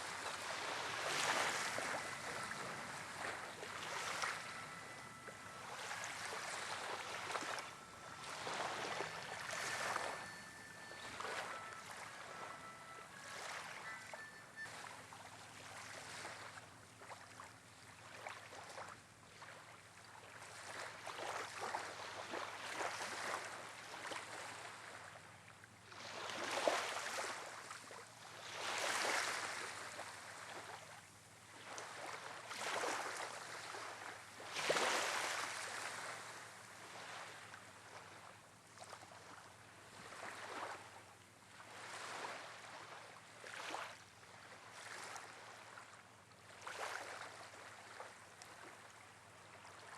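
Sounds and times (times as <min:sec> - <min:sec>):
wind-driven water rushing: 0:00.0 - 0:14.8
wind: 0:00.0 - 0:49.9.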